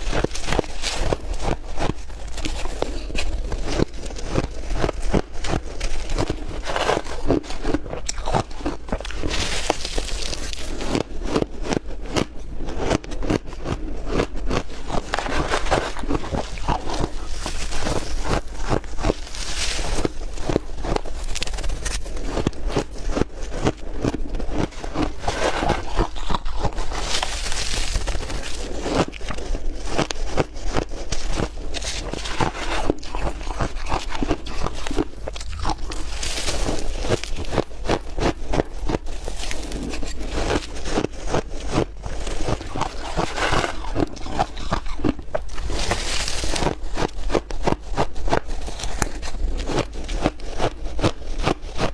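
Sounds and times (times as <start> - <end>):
ice being chewed: 0.0 - 51.9.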